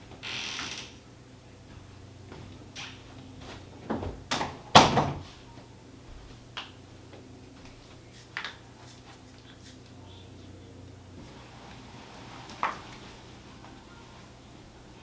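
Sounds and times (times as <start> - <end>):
indoor knocks and bumps: 3.8 - 5.3.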